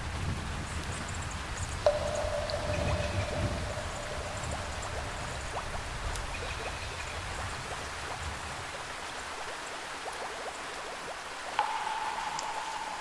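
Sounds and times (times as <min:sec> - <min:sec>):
rain dripping: 0:00.0 - 0:13.0
distant thunder rumble: 0:01.9 - 0:07.4.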